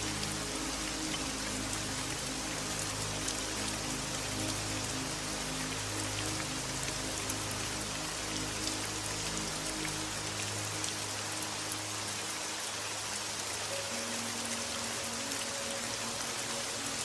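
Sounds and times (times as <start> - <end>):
soft background music: 0.0 - 17.0
steady rain: 0.0 - 17.0.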